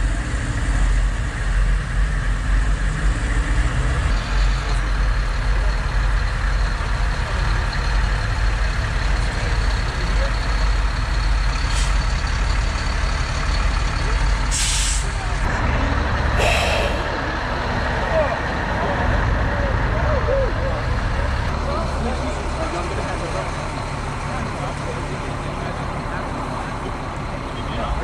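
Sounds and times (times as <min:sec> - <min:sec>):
truck engines rumbling: 0:00.0 - 0:28.0.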